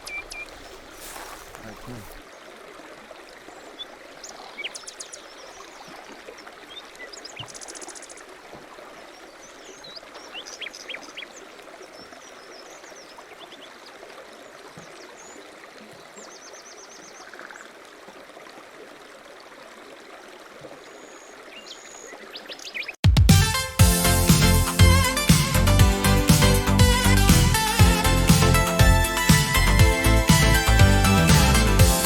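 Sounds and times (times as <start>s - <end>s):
songbirds chirping and trilling: 0.0s - 2.2s.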